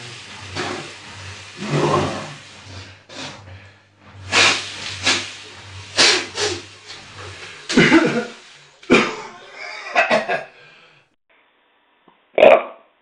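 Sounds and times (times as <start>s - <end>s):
person hissing exhalations: 0.5s - 9.6s, 10.5s - 11.1s.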